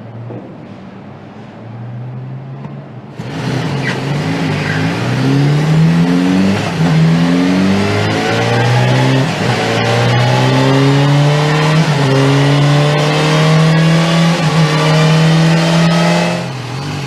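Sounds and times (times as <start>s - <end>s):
vehicle engine accelerating through gears: 1.9s - 17.0s.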